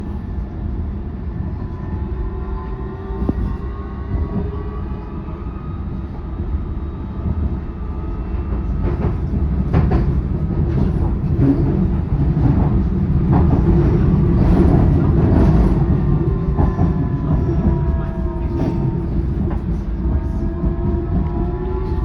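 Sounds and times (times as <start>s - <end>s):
passenger train rumbling: 0.0s - 22.0s
train knocks and clattering: 7.1s - 22.0s.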